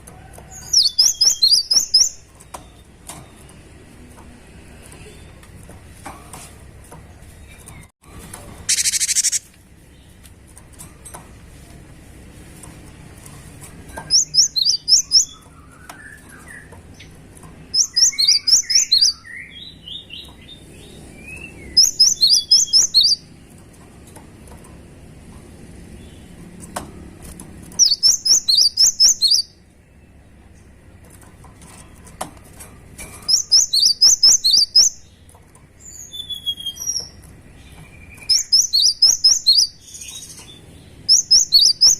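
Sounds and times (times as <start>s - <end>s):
bird singing high repeated notes: 8.7s - 9.4s, 21.6s - 23.2s, 33.3s - 35.0s, 41.1s - 41.9s
soft bird twittering: 8.7s - 10.2s, 14.0s - 23.3s, 27.8s - 30.2s, 33.3s - 41.9s.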